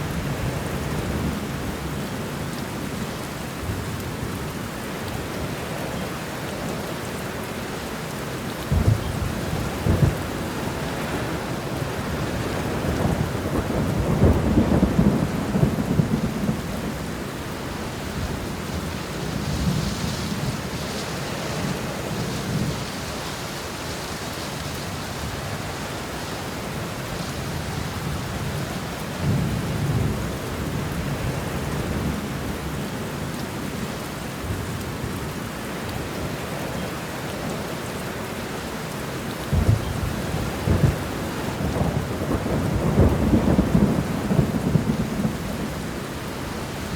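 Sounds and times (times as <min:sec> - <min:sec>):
steady rain: 0:00.0 - 0:46.9
rolling thunder: 0:08.7 - 0:17.2, 0:39.5 - 0:46.9.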